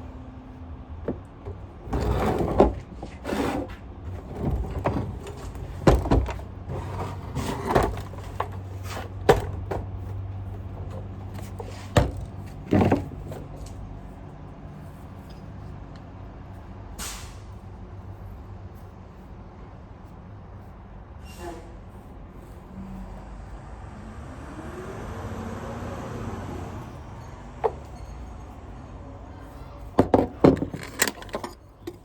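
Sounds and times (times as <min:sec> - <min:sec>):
garbage truck engine humming: 0:00.0 - 0:15.0
vacuum parts knocking and scraping: 0:01.0 - 0:13.9, 0:27.6 - 0:28.3, 0:29.9 - 0:32.0.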